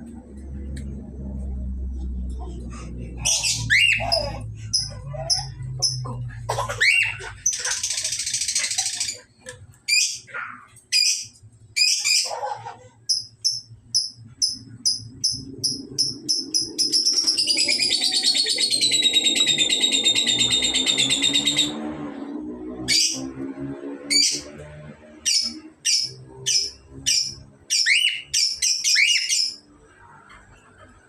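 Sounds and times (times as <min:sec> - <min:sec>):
cockatiel harsh calls: 0:03.2 - 0:05.6, 0:06.6 - 0:09.2, 0:25.3 - 0:29.6
cockatiel warbling whistle song: 0:25.3 - 0:29.6
cockatiel high chirps: 0:25.4 - 0:29.6.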